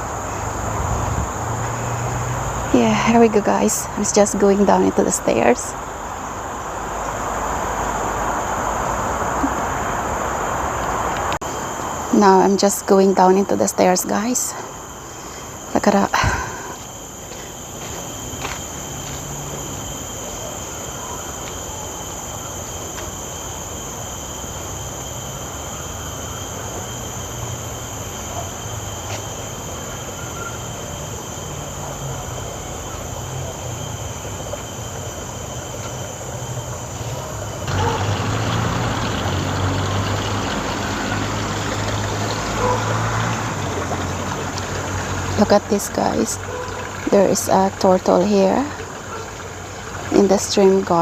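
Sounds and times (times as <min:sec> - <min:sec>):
rushing noise: 0:00.0 - 0:12.7
high insect drone: 0:00.0 - 0:51.0.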